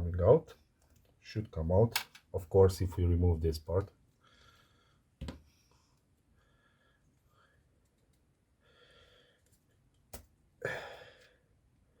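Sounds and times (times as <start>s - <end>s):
sharp clicks of small parts: 1.9s - 2.3s.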